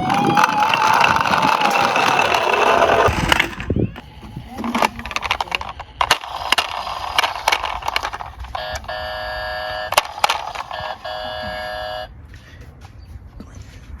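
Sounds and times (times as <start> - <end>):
toy cars clicking and clattering: 0.0 - 12.1
electronic beeping tone: 8.6 - 12.1.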